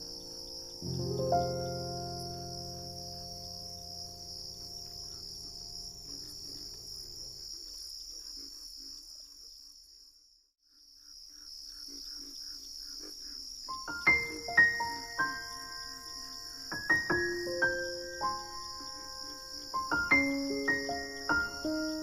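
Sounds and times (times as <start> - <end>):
sustained music notes: 0.0 - 6.2
crickets chirring: 0.0 - 22.0.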